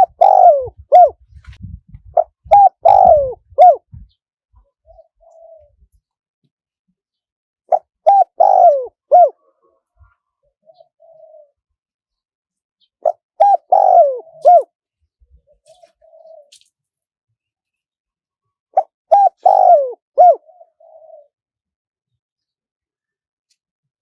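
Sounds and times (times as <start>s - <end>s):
dove cooing: 0.0s - 1.3s, 2.0s - 4.2s, 4.8s - 5.9s, 7.7s - 11.6s, 13.0s - 14.7s, 15.5s - 16.6s, 18.8s - 21.4s.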